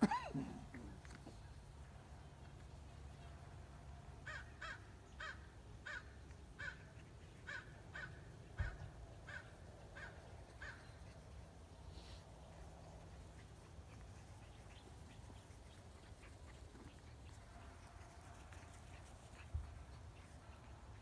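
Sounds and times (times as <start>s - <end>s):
bird cawing: 4.3s - 6.8s, 7.5s - 10.9s.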